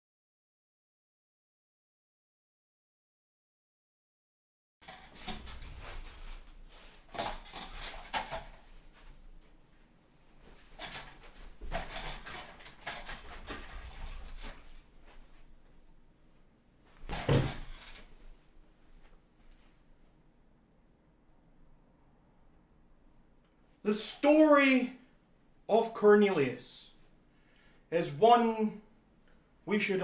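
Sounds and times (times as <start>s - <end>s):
rustling and knocking handling noises: 4.8s - 15.7s.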